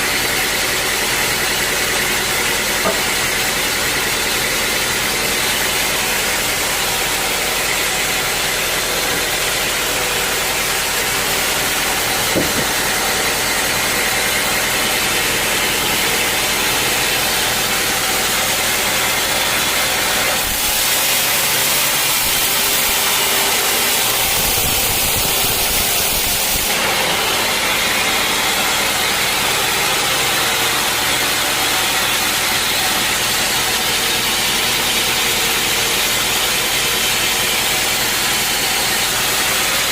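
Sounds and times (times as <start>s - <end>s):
sawmill engine running: 0.0s - 39.9s
hiss: 20.4s - 26.7s.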